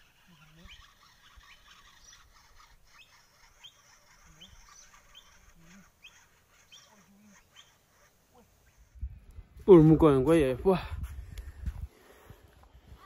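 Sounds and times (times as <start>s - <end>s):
high bird chirps: 0.0s - 8.9s
lower bird calls: 0.0s - 9.1s.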